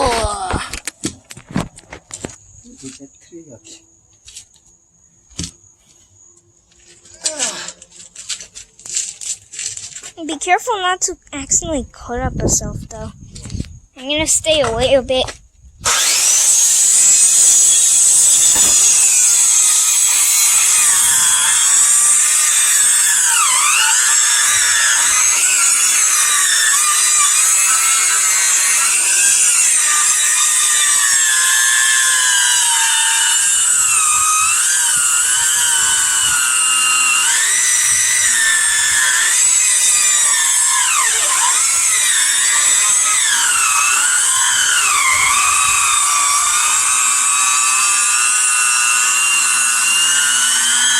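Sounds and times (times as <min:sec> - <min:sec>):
chainsaw cutting log: 0:15.8 - 0:50.9.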